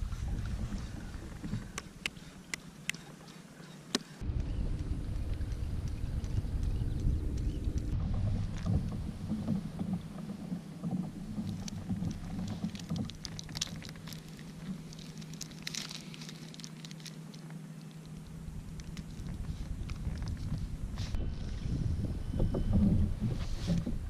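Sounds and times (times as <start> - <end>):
wind rumble on microphone: 0.0 - 2.3, 4.2 - 15.1, 18.1 - 24.0
water splashing against kayak: 8.0 - 17.1.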